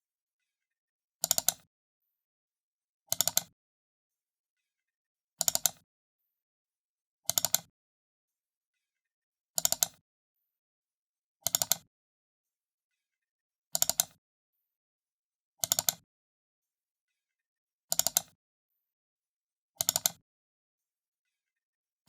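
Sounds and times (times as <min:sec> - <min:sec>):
computer mouse double-clicks: 0:01.2 - 0:01.7, 0:03.1 - 0:03.6, 0:05.4 - 0:05.8, 0:07.3 - 0:07.7, 0:09.6 - 0:10.0, 0:11.4 - 0:11.9, 0:13.7 - 0:14.2, 0:15.6 - 0:16.0, 0:17.9 - 0:18.4, 0:19.8 - 0:20.2.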